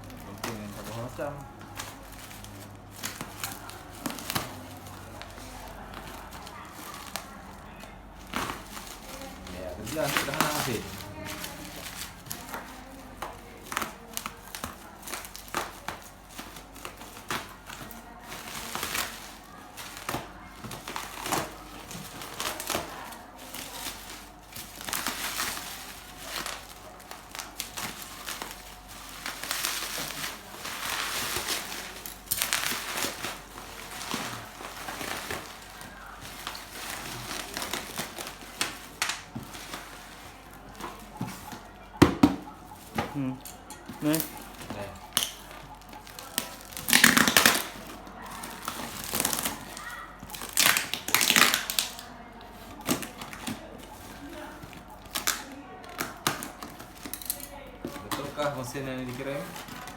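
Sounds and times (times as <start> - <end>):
packaging crinkling and tearing: 0.0 - 59.9.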